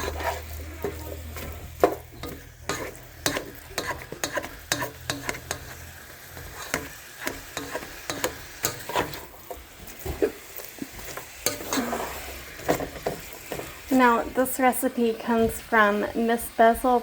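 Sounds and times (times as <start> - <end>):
utensil scraping a pan: 0.0 - 14.5
meat sizzling in a frying pan: 0.0 - 17.0.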